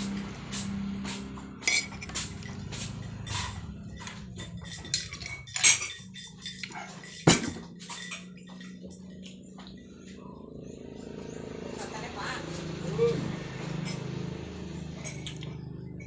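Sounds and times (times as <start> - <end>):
cutlery and dishes clinking: 1.6 - 8.8.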